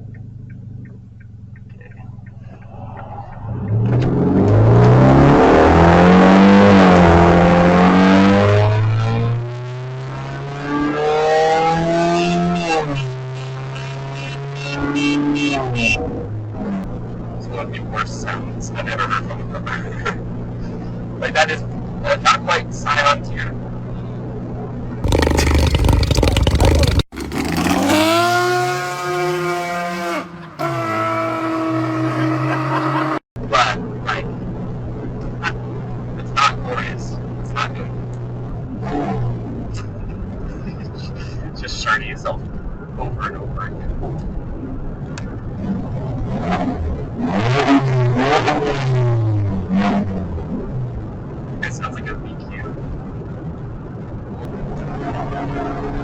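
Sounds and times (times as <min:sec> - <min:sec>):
car engine revving loud and harsh: 0:03.3 - 0:16.9, 0:25.0 - 0:33.2, 0:46.2 - 0:50.4
loud harsh car exhaust: 0:25.0 - 0:33.2.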